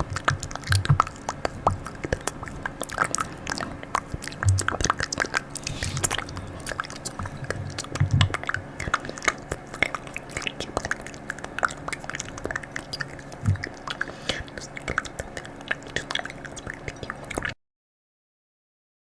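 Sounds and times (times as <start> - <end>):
soft low thumps: 0.0 - 5.1, 5.7 - 8.8, 13.4 - 13.7.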